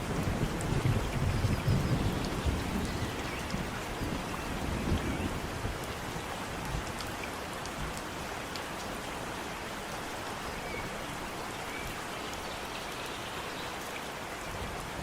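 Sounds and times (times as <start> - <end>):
low rumble of thunder: 0.0 - 5.8
raindrops ticking close by: 0.0 - 15.0
steady rain falling: 0.0 - 15.0.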